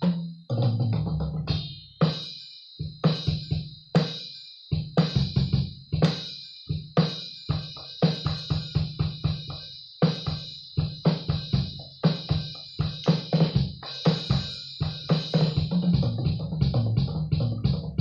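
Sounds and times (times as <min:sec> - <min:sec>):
cymbals ringing: 0:01.6 - 0:15.8
bass drum and snare hits: 0:07.5 - 0:18.0.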